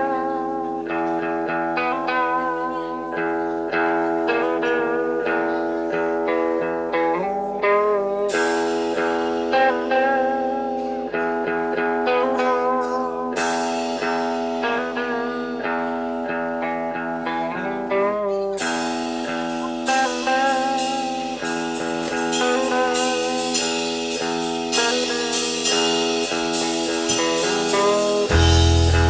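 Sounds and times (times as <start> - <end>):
live band music led by guitar: 0.0 - 29.0
heavy bass: 25.4 - 29.0.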